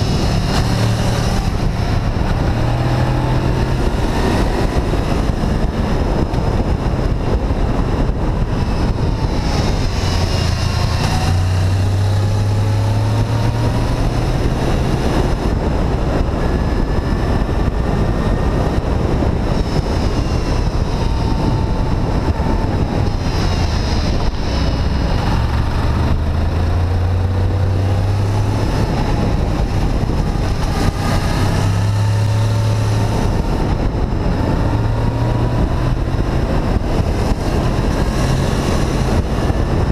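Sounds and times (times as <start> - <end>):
motorcycle engine accelerating: 0.0 - 39.9
wind rush on microphone: 0.0 - 39.9.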